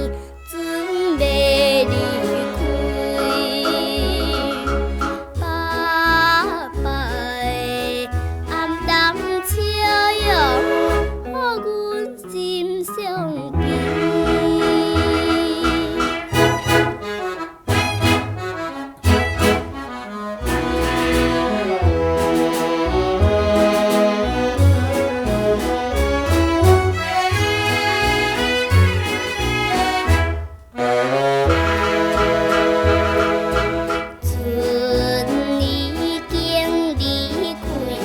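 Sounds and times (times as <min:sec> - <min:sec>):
pop band music: 0:01.2 - 0:38.0
pulsing bass beat: 0:02.6 - 0:07.4.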